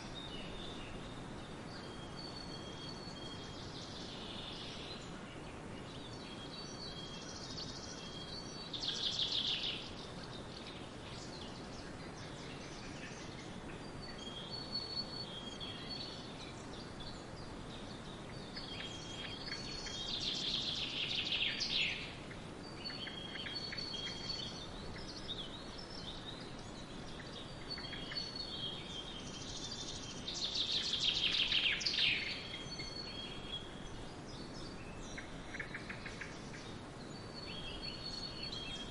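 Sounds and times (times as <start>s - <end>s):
background hiss: 0.0s - 38.9s
songbirds singing: 0.0s - 38.9s.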